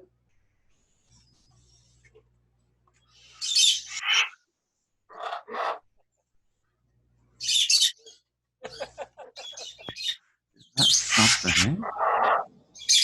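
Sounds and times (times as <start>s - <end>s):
parrots calling: 3.2s - 4.4s, 5.1s - 5.9s, 7.4s - 13.0s.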